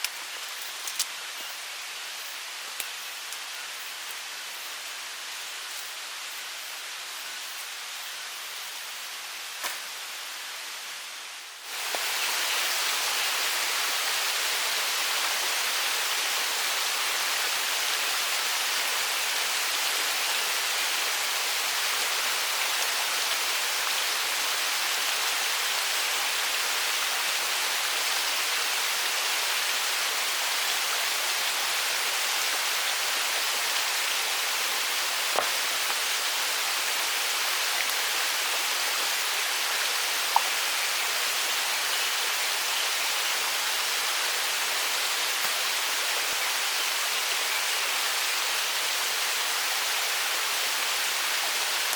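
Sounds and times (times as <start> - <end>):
small ticks: 2.8 - 3.5
stream rushing: 11.6 - 51.9.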